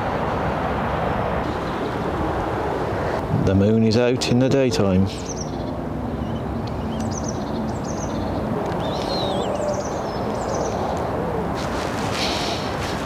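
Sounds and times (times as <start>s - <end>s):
low outdoor rushing noise: 0.0s - 13.0s
small birds chirping: 4.8s - 13.0s.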